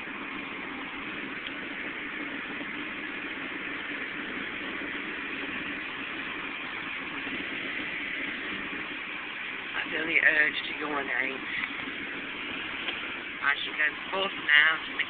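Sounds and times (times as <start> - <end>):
car engine: 0.0 - 15.0
road noise: 0.0 - 15.0.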